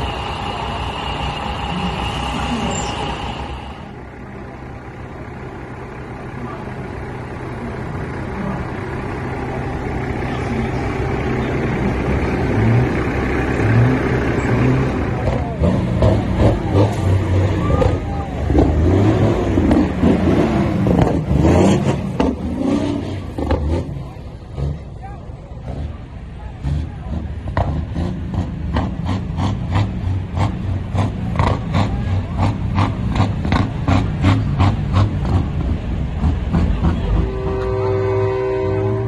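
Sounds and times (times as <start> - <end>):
voices: 0.0 - 28.0
truck engine accelerating: 0.0 - 39.0.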